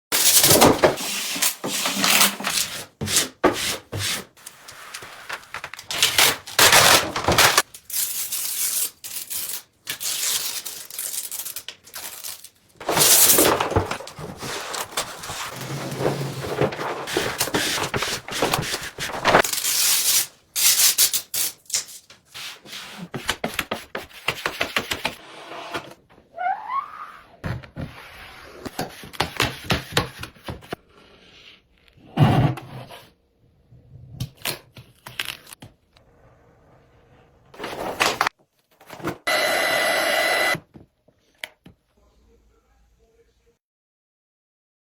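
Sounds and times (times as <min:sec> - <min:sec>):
rubbing and scraping: 0:12.8 - 0:20.3.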